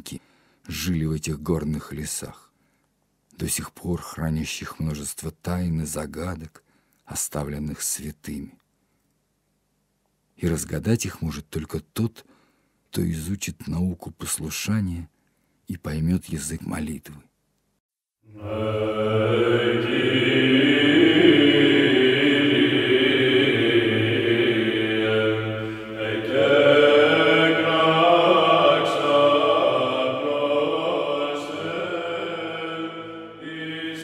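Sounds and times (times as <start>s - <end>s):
voices chanting: 18.3s - 34.0s.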